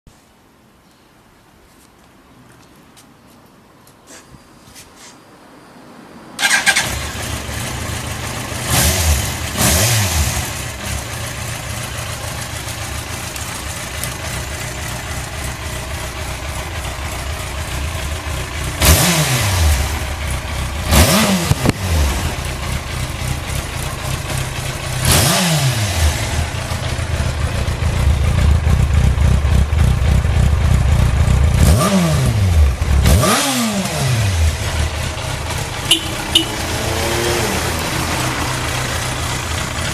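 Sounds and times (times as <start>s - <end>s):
motorcycle engine idling and revving: 6.4s - 39.9s.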